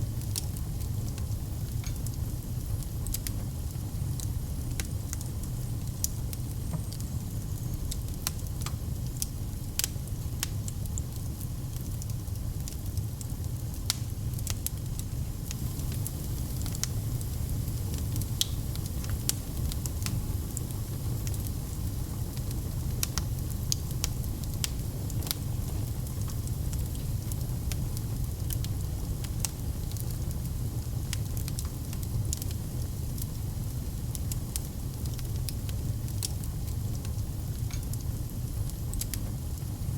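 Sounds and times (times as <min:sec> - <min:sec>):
low rumble of flames: 0:00.0 - 0:39.9
wood fire crackling: 0:00.0 - 0:39.9
fire pops and snaps: 0:00.2 - 0:39.8.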